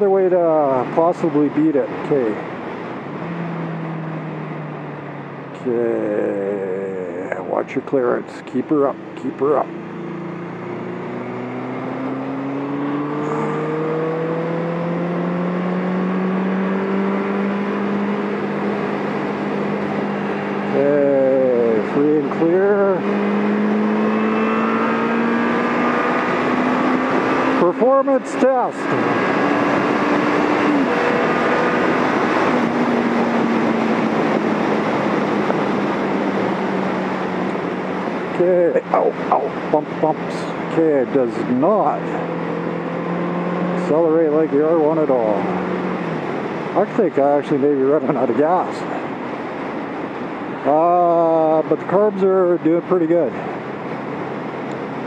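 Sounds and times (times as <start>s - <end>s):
motorcycle engine accelerating: 8.7s - 55.0s
wind rush: 28.8s - 38.4s.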